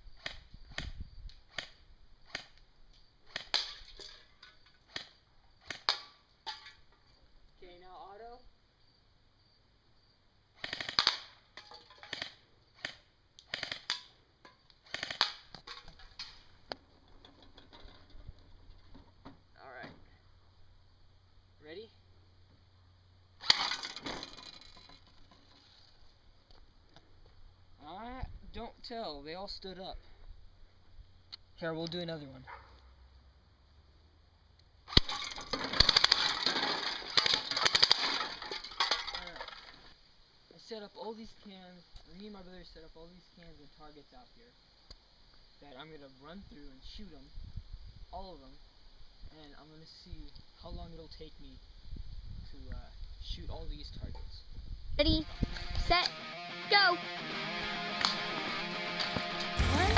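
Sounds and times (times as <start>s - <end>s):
airsoft rifle firing bursts: 10.6s - 11.3s, 12.1s - 14.0s, 14.9s - 15.4s.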